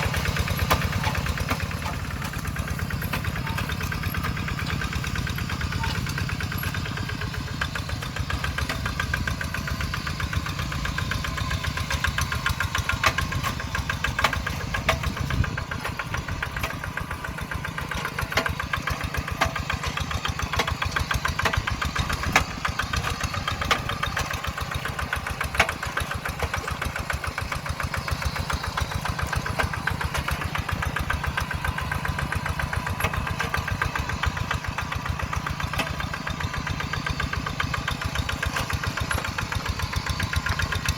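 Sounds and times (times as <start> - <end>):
diesel engine running: 0.0 - 40.9
sharp engine knocks: 11.0 - 40.9.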